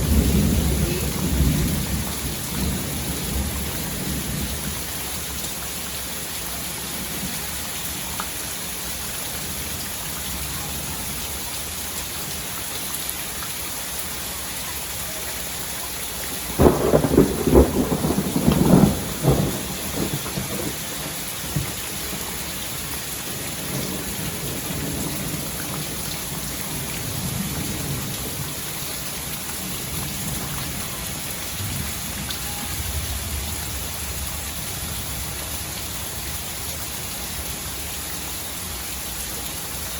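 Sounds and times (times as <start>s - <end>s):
thunder crack and rumbling: 0.0s - 5.4s, 16.5s - 35.6s
steady rain falling: 0.0s - 39.9s.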